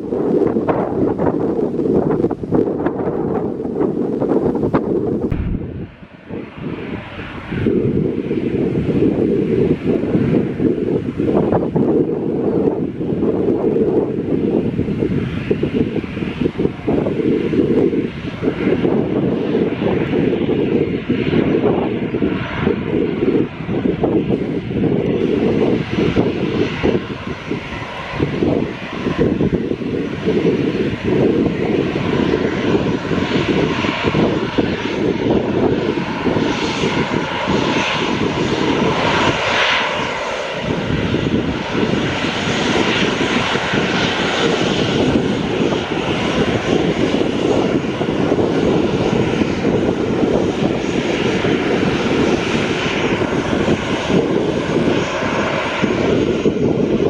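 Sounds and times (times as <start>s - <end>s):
airliner engines roaring: 0.0s - 57.0s.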